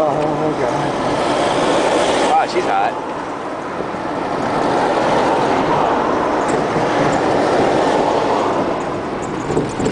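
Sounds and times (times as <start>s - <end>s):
tyres rolling on road: 0.0s - 9.9s
wind rushing: 0.8s - 9.9s.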